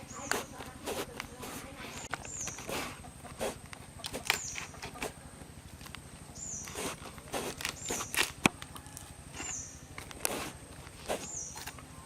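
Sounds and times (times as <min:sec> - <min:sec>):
bird chirping: 0:00.0 - 0:05.4, 0:06.1 - 0:10.0, 0:11.0 - 0:12.0.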